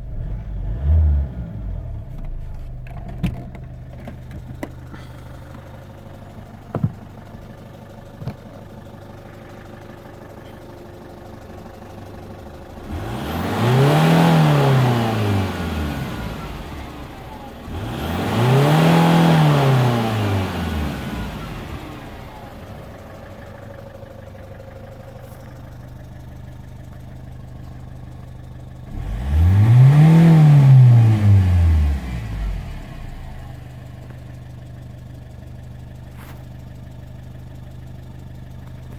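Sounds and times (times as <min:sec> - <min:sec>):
diesel engine idling and revving: 0:00.0 - 0:38.9
engine ticking: 0:02.0 - 0:38.9.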